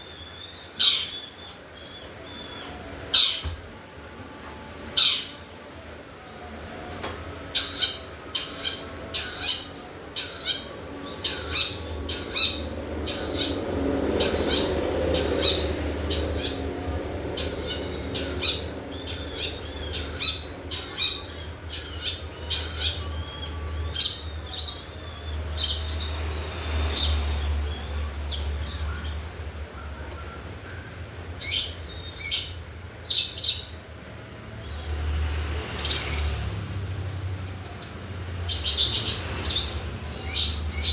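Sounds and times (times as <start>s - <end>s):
bird chirping and twittering: 0.0s - 3.6s, 4.8s - 5.5s, 7.4s - 40.9s.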